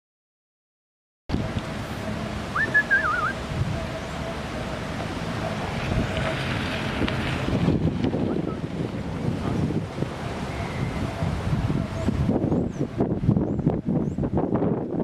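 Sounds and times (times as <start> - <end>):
wind rushing over microphone: 1.3 - 15.0
whistled bird call: 2.5 - 3.4, 8.3 - 8.6, 10.5 - 11.1.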